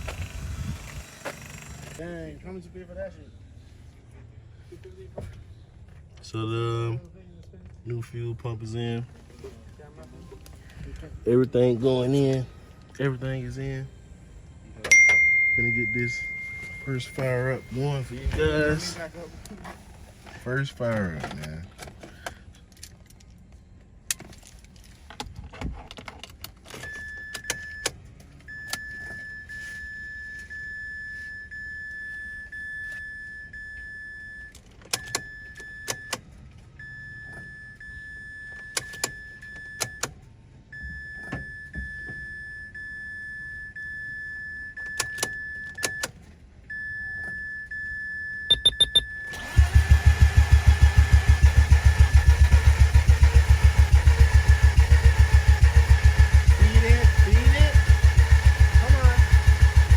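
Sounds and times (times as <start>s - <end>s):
rotary engine cranking and running: 0.0s - 2.2s, 49.3s - 59.9s
high steady electronic tone: 13.2s - 18.8s, 48.4s - 49.3s.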